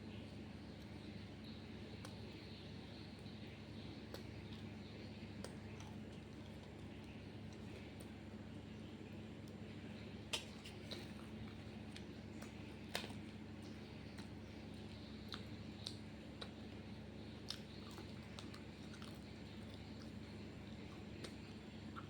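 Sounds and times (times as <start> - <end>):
person chewing food: 10.3 - 22.0.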